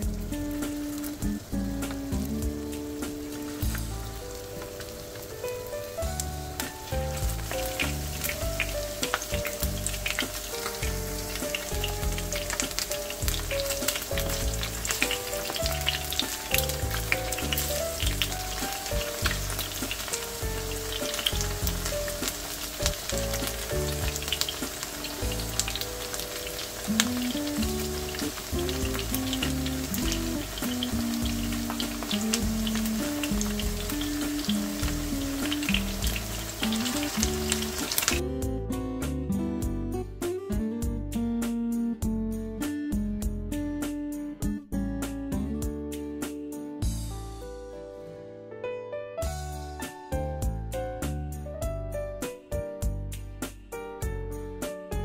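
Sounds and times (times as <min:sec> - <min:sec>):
background music with pulsing bass: 0:00.0 - 0:04.6, 0:06.0 - 0:47.5
chicken frying in hot oil: 0:00.0 - 0:38.2.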